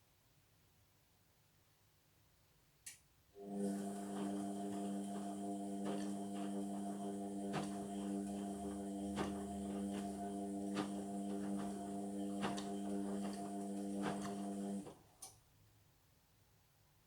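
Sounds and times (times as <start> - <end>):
washing machine pump humming: 3.4 - 15.0.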